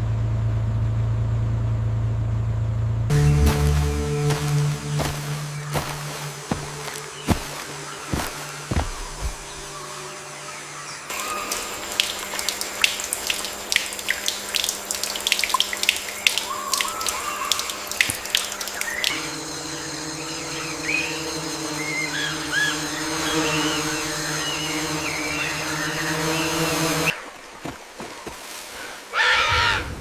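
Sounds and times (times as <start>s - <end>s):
water splashing and dripping: 11.1s - 19.3s
short chirping calls: 15.5s - 19.3s.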